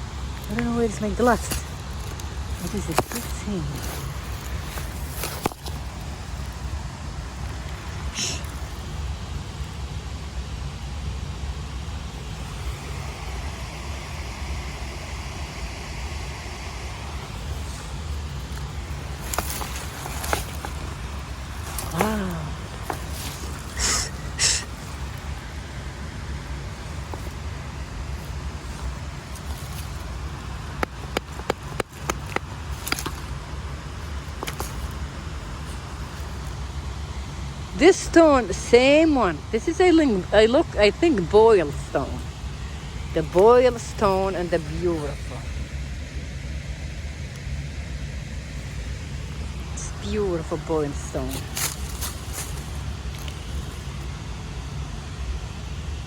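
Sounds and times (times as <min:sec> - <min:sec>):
steady low rumble: 0:00.0 - 0:56.0
stones knocking together: 0:00.5 - 0:06.4, 0:17.8 - 0:23.8, 0:28.6 - 0:35.2.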